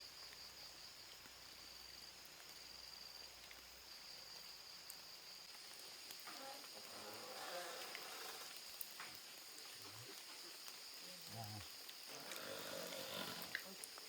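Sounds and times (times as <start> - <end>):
insects chirring: 0.0 - 14.0
soft outdoor hiss: 0.0 - 14.0.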